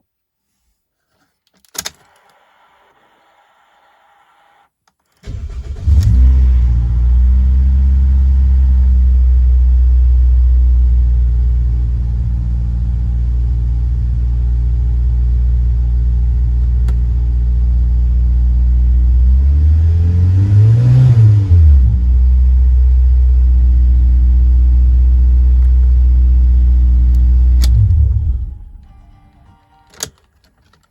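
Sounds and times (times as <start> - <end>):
engine revving: 5.2 - 9.1, 19.0 - 22.6, 26.9 - 28.8
car engine cranking and idling: 5.2 - 29.0.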